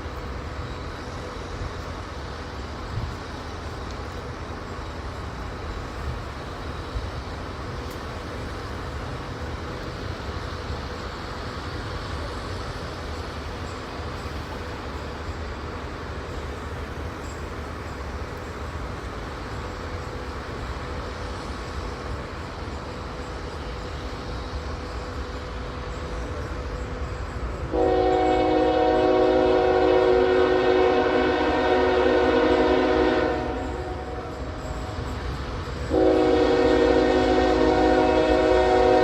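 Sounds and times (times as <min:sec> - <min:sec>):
train rumble: 0:00.0 - 0:39.0
locomotive air horn blast: 0:27.7 - 0:34.5, 0:35.9 - 0:39.0.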